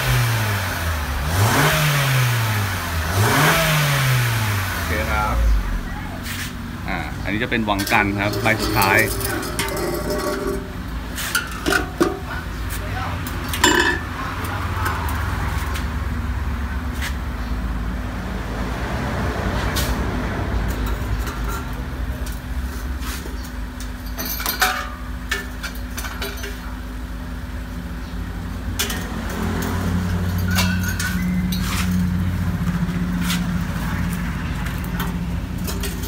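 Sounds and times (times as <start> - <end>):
car engine idling: 2.4 - 18.3, 26.7 - 36.0
metal clinks and knocks: 7.7 - 10.8, 13.5 - 14.1, 23.9 - 26.7, 28.8 - 33.0, 34.6 - 36.0.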